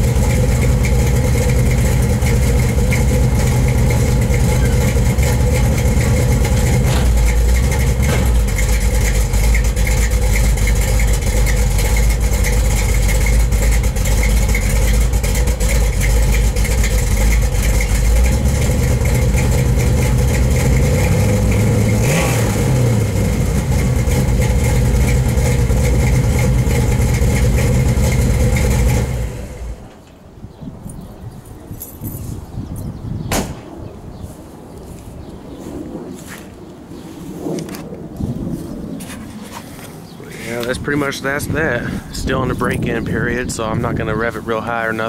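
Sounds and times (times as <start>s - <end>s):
engine idling with deep rumble: 0.0s - 30.0s, 40.3s - 45.0s.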